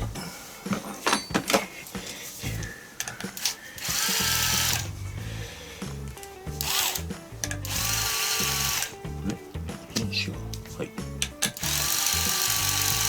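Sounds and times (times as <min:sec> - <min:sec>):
electric power driver running: 0:03.3 - 0:09.4, 0:11.2 - 0:13.0.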